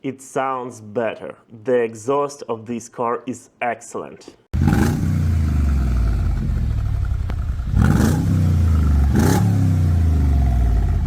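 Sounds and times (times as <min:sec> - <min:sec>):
car engine idling: 0:04.6 - 0:11.0
engine revving: 0:04.6 - 0:11.0.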